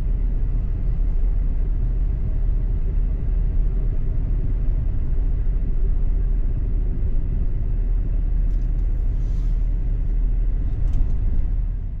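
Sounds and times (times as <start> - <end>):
car driving rumble: 0.0 - 12.0
road and wind noise: 0.0 - 12.0.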